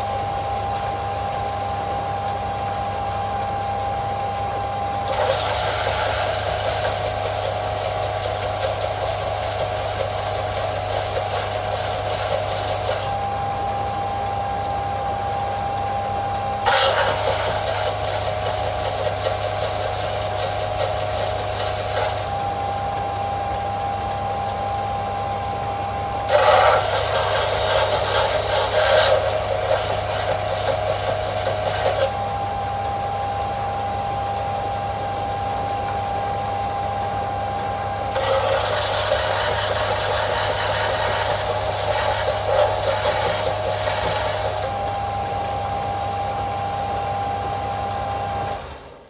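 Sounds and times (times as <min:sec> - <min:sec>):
sander running with steady hum: 0:04.9 - 0:13.6, 0:16.6 - 0:22.6, 0:26.1 - 0:32.6, 0:37.8 - 0:45.4
steel blade grinding rasp: 0:05.1 - 0:13.2, 0:16.7 - 0:22.4, 0:26.3 - 0:32.3, 0:38.1 - 0:44.9.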